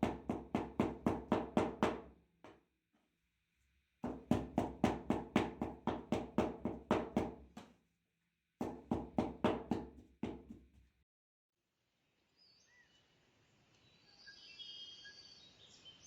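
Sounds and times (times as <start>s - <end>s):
meat being pounded: 0.0s - 2.6s, 4.0s - 7.7s, 8.6s - 10.8s.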